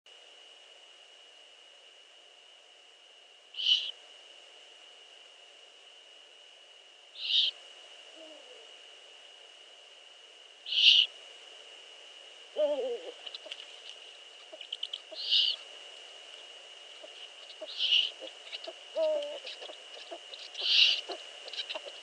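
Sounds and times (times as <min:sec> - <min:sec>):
owl chicks hissing begging calls: 0:03.6 - 0:04.0, 0:07.2 - 0:07.6, 0:10.6 - 0:11.2, 0:12.6 - 0:15.7, 0:16.9 - 0:22.0
lower falling call: 0:12.6 - 0:13.2, 0:17.0 - 0:21.9.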